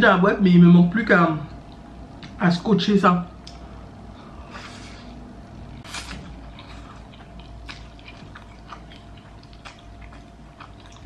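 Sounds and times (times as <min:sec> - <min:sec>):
chewing with wet mouth clicks: 0:01.5 - 0:02.4, 0:03.4 - 0:03.7, 0:05.8 - 0:11.0.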